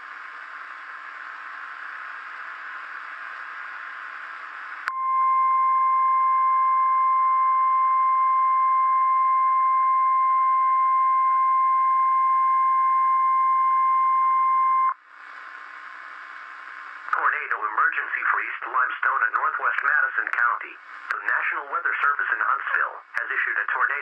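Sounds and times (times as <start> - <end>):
radio static hiss: 15.0 - 24.0.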